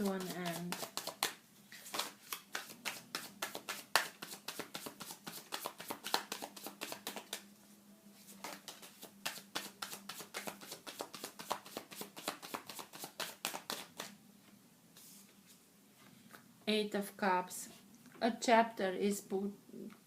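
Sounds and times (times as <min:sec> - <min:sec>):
cards being shuffled: 0:00.0 - 0:07.4, 0:08.3 - 0:14.1.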